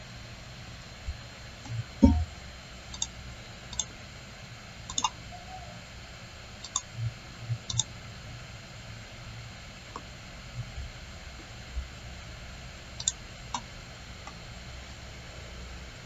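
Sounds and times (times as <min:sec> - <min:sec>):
computer mouse clicks: 0:02.9 - 0:03.1, 0:04.9 - 0:05.2, 0:06.6 - 0:06.9, 0:07.6 - 0:07.9, 0:13.0 - 0:13.7.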